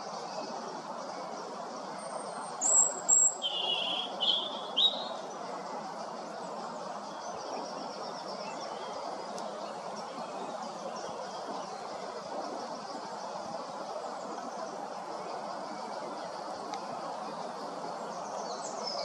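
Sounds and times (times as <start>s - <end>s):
outdoor background rush: 0.0s - 19.0s
bird singing high trills: 2.0s - 5.3s.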